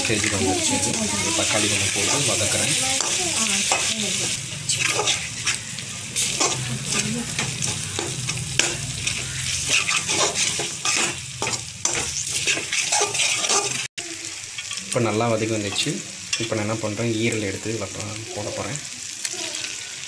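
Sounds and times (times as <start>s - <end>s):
food sizzling in hot oil: 0.0s - 20.0s
metal spatula scraping pan: 0.1s - 13.9s.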